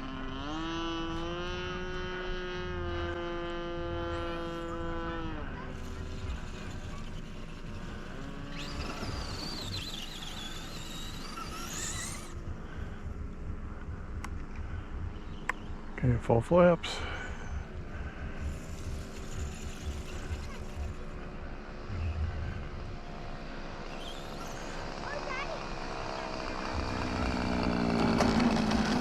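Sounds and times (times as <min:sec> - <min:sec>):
model airplane engine: 0:00.0 - 0:14.4, 0:16.8 - 0:29.0
high wavering whine: 0:00.0 - 0:16.0.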